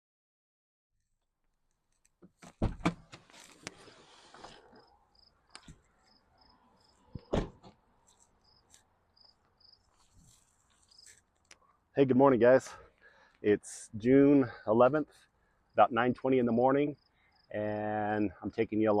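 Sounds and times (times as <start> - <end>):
insect chirping: 4.8 - 7.2, 8.4 - 10.1, 10.8 - 11.2, 16.9 - 17.6.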